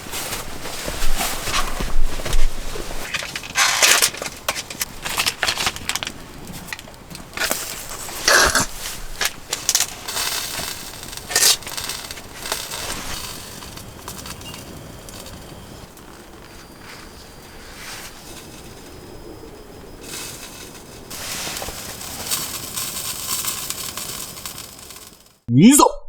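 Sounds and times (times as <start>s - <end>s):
crunching and rustling: 0.0s - 25.4s.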